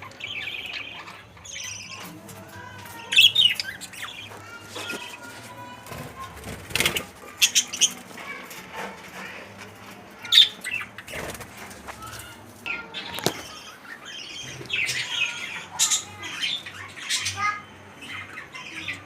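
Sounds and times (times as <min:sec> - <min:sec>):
wings flapping: 0:11.0 - 0:12.4.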